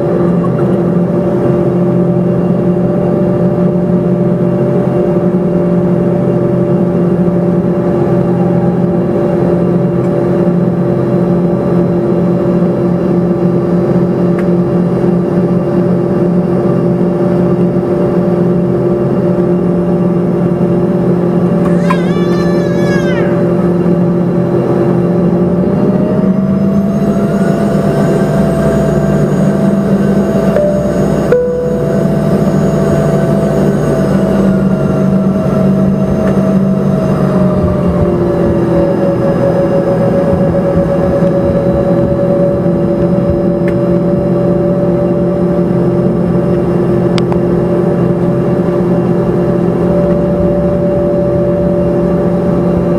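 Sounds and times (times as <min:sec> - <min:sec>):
aircraft cabin engine rush: 0:00.0 - 0:52.9
low droning tones: 0:18.0 - 0:52.9.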